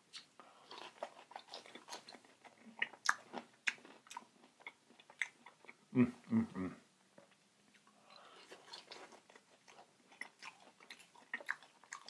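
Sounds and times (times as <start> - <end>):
chewing fries with crackling clicks: 0.1 - 5.8, 7.2 - 12.0.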